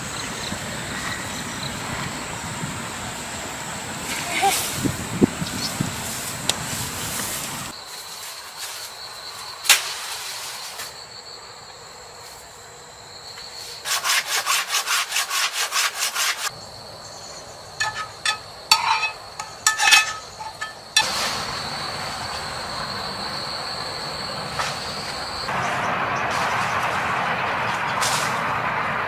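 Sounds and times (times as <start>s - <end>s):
high-pitched insect drone: 16.5s - 25.6s
clicks and knocks: 17.8s - 20.8s.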